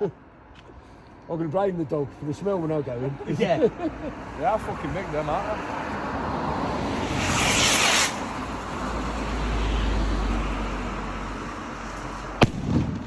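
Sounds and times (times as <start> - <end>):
firework rocket rumble: 6.7 - 8.9, 12.4 - 13.0
firework bang: 7.0 - 8.3, 12.4 - 13.0.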